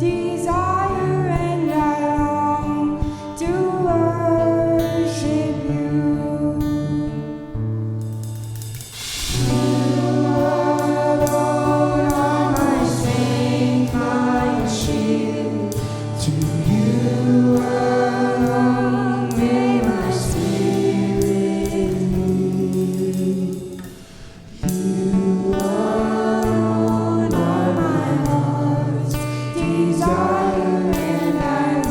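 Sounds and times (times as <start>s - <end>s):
percussion hits: 8.1s - 24.9s
held bass note: 9.0s - 21.8s
voices singing over a band: 9.3s - 31.9s.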